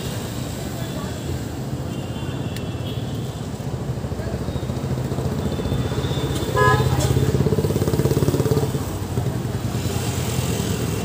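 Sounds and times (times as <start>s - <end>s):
street traffic: 0.0s - 11.0s
motorcycle engine running: 6.6s - 9.6s.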